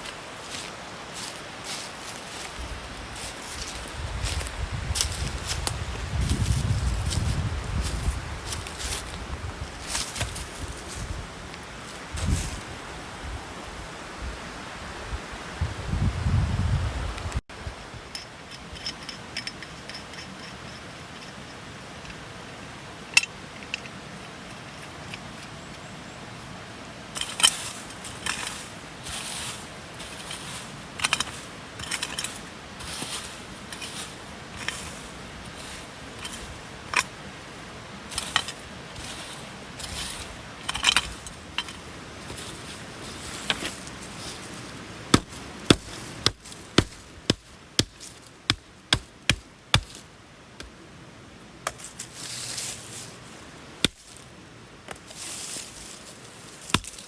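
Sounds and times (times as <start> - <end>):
gear scraping and clinking: 18.1 - 22.2, 27.2 - 50.0
sharp strikes on wood or metal: 45.1 - 50.0.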